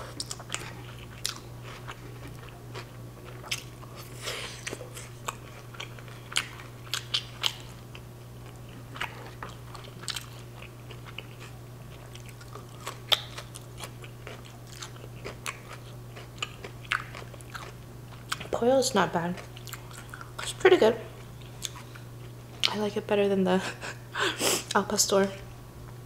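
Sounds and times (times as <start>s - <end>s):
crisp chewing crunches: 0.1s - 18.5s, 19.3s - 20.6s.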